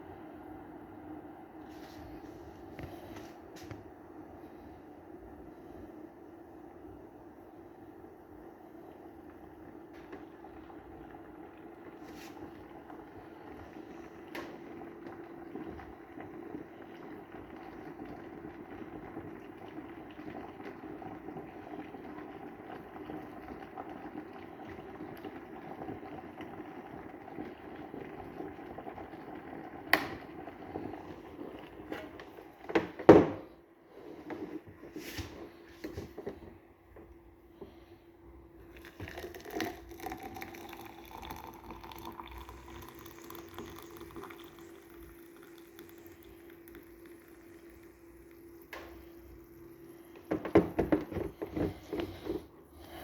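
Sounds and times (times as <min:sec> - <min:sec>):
electric kettle boiling: 0:00.0 - 0:53.0
steady hum: 0:35.2 - 0:53.0
water pouring into a cup: 0:38.6 - 0:52.2.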